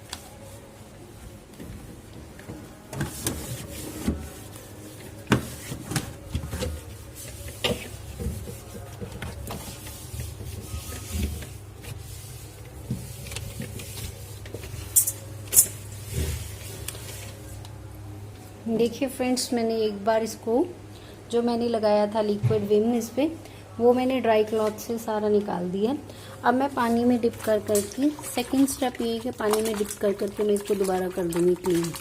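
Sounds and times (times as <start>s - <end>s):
cloth rubbing and wiping: 2.7s - 5.9s, 6.6s - 15.1s.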